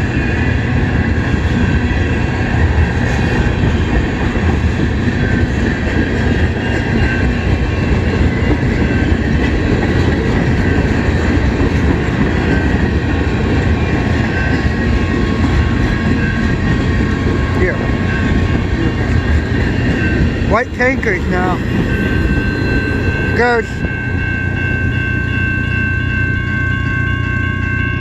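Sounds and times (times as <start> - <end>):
freight train wheels rumbling: 0.0 - 28.0.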